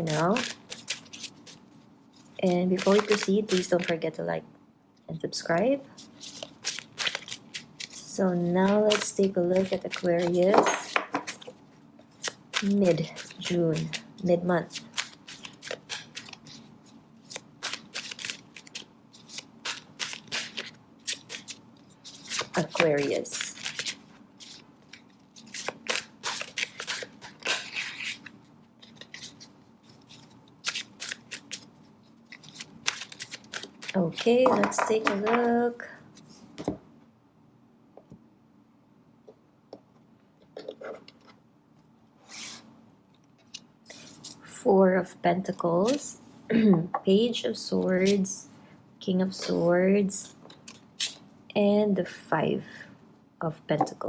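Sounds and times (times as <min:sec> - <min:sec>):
cards being shuffled: 0:00.0 - 0:01.6, 0:02.2 - 0:04.0, 0:06.0 - 0:31.7, 0:32.3 - 0:35.5
cards tapping and clicking: 0:02.8 - 0:03.9.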